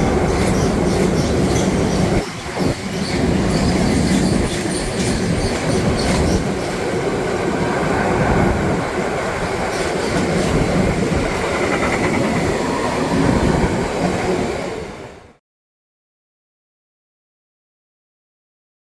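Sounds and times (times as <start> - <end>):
freight train wheels clattering: 0.0 - 7.6, 8.6 - 14.9.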